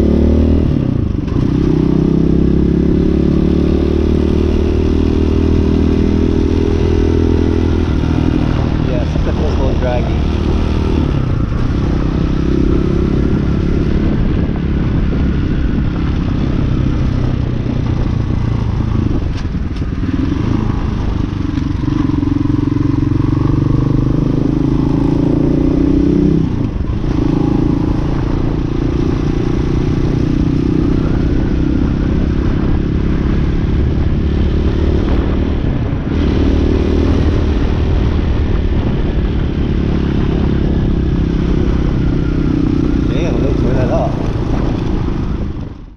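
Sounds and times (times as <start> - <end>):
dirt bike engine revving: 19.9 - 32.8.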